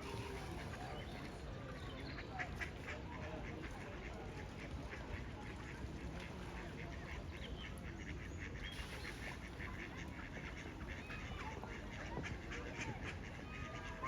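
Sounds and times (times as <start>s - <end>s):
low background noise: 0.0s - 14.0s.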